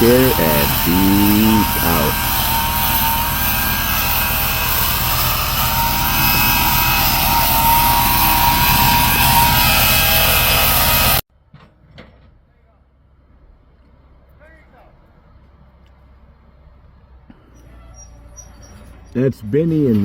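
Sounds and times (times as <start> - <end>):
large engine running under load: 0.0 - 11.2.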